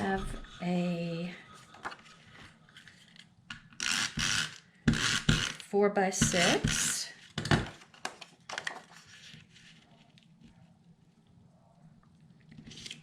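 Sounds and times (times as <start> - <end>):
paper rustling: 7.2 - 10.7, 12.5 - 13.0.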